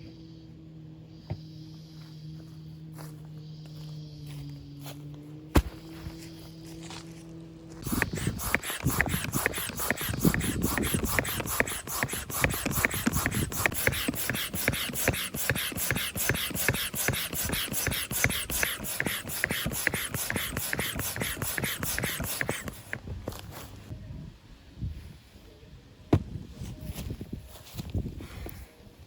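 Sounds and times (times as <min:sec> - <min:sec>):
rapid mechanical clicking: 0:07.8 - 0:23.0.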